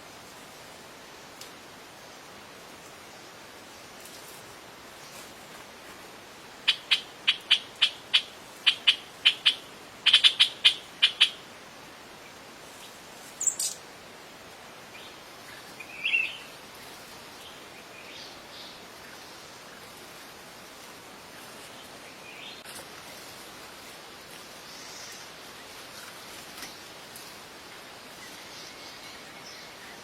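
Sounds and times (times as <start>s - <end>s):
faint hiss: 0.0s - 30.0s
sharp bird chirps: 13.4s - 13.8s.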